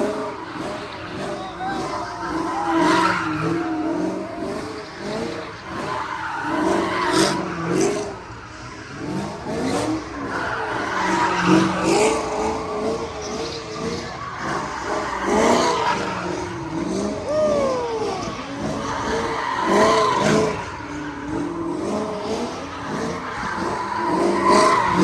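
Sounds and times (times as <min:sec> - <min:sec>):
car engine revving: 0:00.0 - 0:25.0
car tyres squealing: 0:00.0 - 0:25.0.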